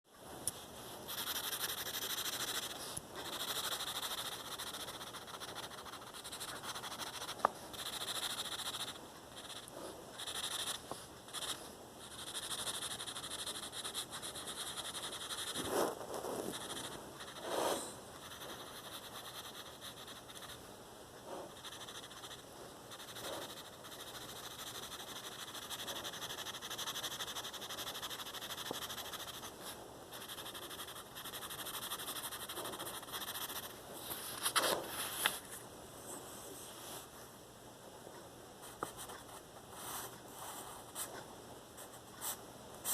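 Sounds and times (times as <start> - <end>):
pencil rubbing on paper: 1.1 - 20.6, 21.3 - 35.4
pencil scratching on paper: 1.1 - 20.6, 21.3 - 35.4.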